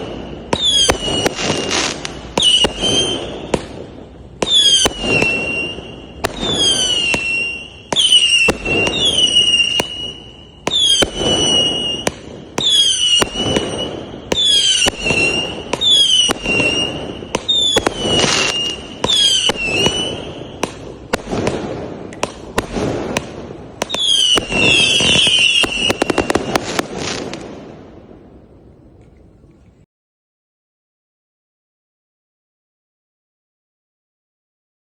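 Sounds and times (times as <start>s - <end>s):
fireworks whistle: 0.0s - 27.8s
fireworks bangs and pops: 0.0s - 29.8s.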